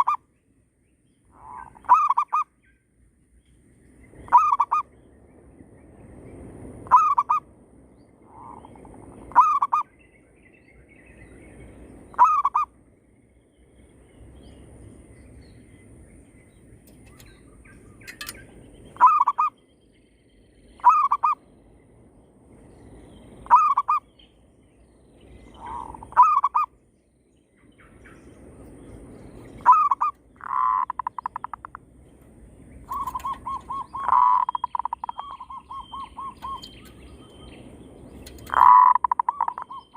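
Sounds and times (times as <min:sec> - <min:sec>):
low steady background noise: 0:00.0 - 0:39.9
doves cooing: 0:01.4 - 0:02.5, 0:04.3 - 0:04.9, 0:08.2 - 0:09.9, 0:12.1 - 0:12.7, 0:19.0 - 0:19.6, 0:20.8 - 0:21.4, 0:23.4 - 0:24.0, 0:25.5 - 0:26.7, 0:29.6 - 0:31.8, 0:32.8 - 0:37.4, 0:38.3 - 0:39.9.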